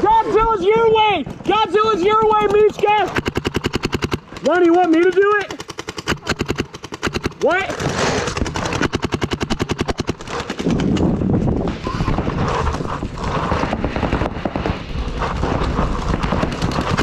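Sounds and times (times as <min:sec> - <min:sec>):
paintball markers firing: 0:01.2 - 0:11.3, 0:12.4 - 0:17.0.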